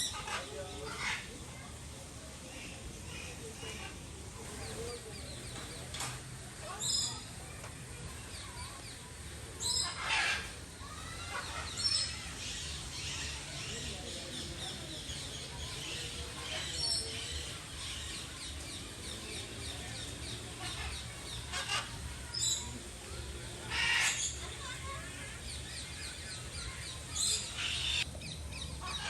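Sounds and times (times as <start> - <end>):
small birds chirping and twittering: 0.0 - 29.0
harsh bird calls: 9.6 - 29.0.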